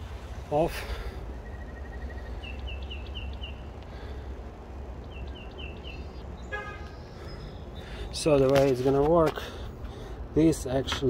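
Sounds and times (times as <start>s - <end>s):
steady low rumble: 0.0s - 10.9s
songbird chirping: 0.5s - 9.0s.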